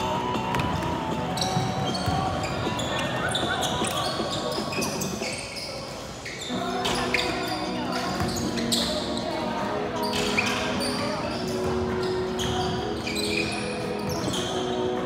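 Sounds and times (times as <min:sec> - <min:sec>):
sneakers squeaking: 0:00.0 - 0:15.0
basketball bouncing on court: 0:00.2 - 0:05.3.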